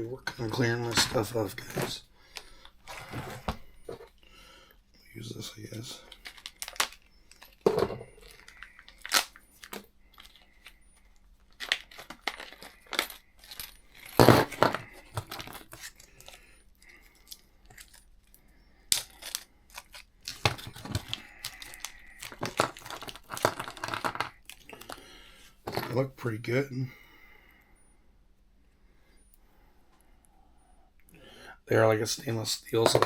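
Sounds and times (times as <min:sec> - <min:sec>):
plastic bag crinkling: 0:05.8 - 0:18.2, 0:19.0 - 0:25.0.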